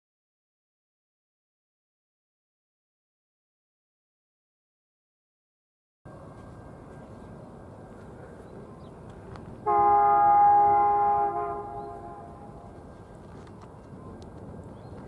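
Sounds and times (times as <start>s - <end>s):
locomotive air horn chord: 9.6s - 12.8s.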